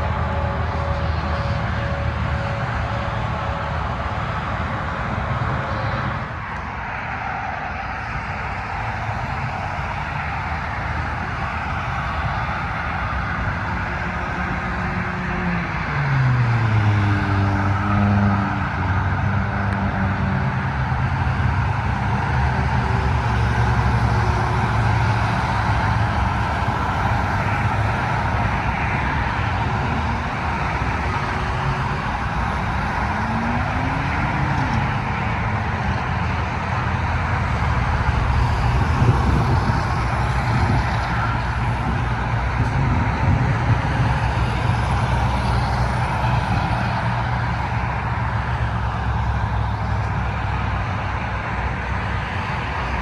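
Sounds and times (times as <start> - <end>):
car engines humming: 0.0 - 53.0
tyres on highway: 0.0 - 53.0.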